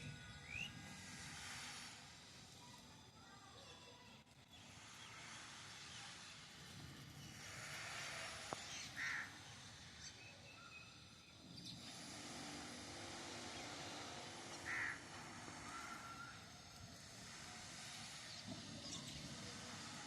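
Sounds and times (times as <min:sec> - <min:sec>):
loud bird calls: 0:07.6 - 0:11.0, 0:14.5 - 0:16.4.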